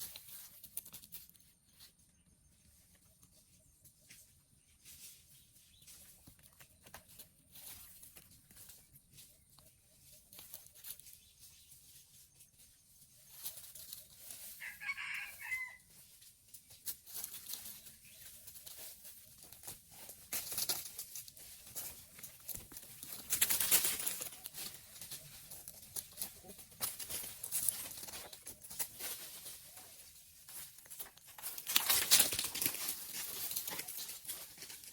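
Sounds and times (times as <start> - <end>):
rustling noises: 0.0 - 34.9
rooster crowing: 14.6 - 15.9.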